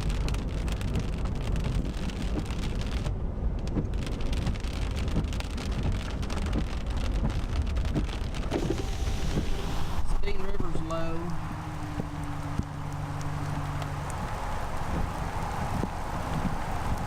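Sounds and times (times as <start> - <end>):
raindrops ticking on car: 0.0 - 17.0
road and engine rumble: 0.0 - 17.0.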